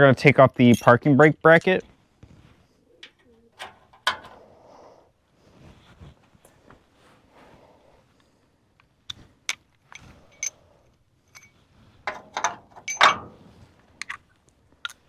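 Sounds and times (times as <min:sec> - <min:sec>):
metal tools clinking: 0:00.6 - 0:01.1, 0:03.0 - 0:04.4, 0:09.9 - 0:10.6, 0:11.3 - 0:14.2.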